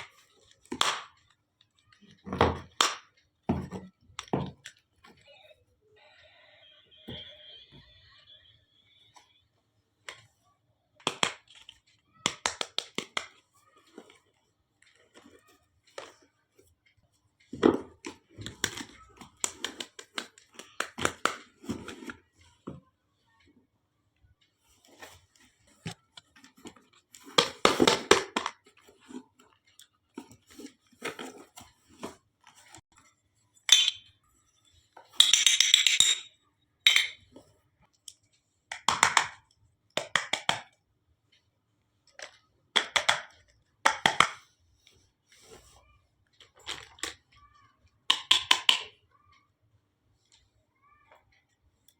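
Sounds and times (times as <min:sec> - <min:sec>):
toy kitchenware clinking: 0:33.6 - 0:37.4, 0:48.1 - 0:49.0.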